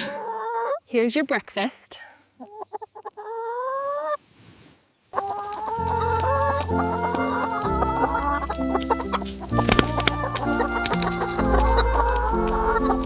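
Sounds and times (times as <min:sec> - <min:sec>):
chicken rising call: 0:00.0 - 0:00.8, 0:02.5 - 0:04.2, 0:05.2 - 0:13.0
chickens clucking: 0:00.0 - 0:04.2, 0:05.1 - 0:13.0
soft background music: 0:05.3 - 0:13.0.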